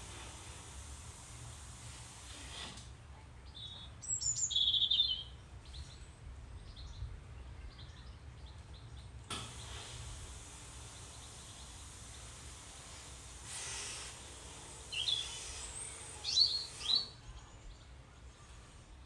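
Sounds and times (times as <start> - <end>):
high bird chirps: 3.6 - 5.9, 14.9 - 15.4, 16.2 - 17.6.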